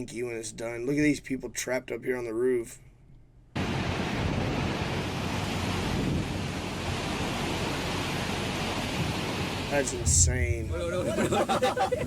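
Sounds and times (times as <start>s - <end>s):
wind buffeting microphone: 4.2s - 12.0s
floodwater rushing: 4.6s - 12.0s.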